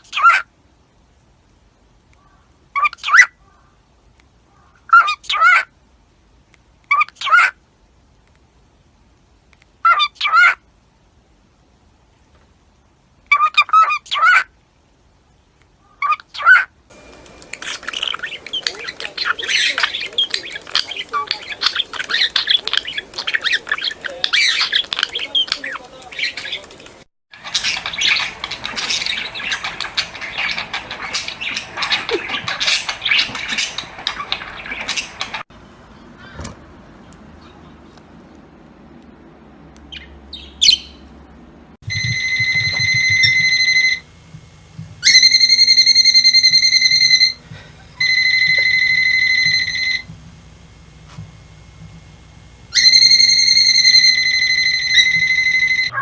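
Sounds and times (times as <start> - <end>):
parrots chirping and squawking: 16.0 - 37.9, 41.9 - 44.1, 45.0 - 50.1, 52.7 - 56.0
loud steady high tones: 16.9 - 36.2, 41.8 - 56.0.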